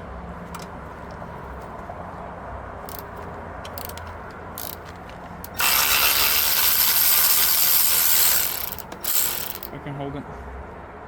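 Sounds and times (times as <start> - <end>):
ratchet wrench ratcheting: 2.8 - 9.8.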